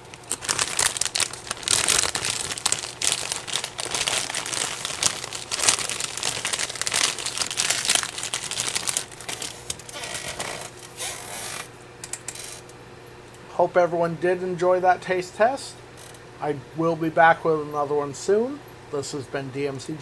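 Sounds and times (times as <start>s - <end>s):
snack bag crinkling: 0.0s - 11.7s.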